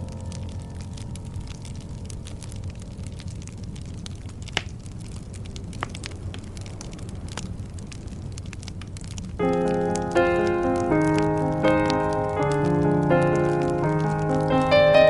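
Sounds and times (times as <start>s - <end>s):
wood fire crackling and popping: 0.0s - 15.0s
keyboard music: 9.4s - 15.0s.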